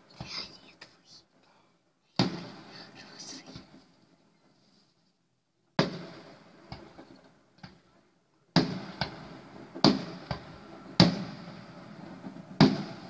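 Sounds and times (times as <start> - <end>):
firework shells bursting: 2.1 - 4.8, 5.7 - 7.9, 8.5 - 13.0.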